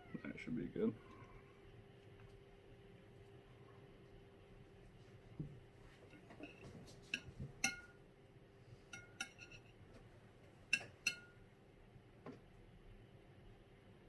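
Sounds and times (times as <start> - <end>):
fork clinking on a plate: 6.2 - 8.0, 8.9 - 9.7, 10.7 - 11.4.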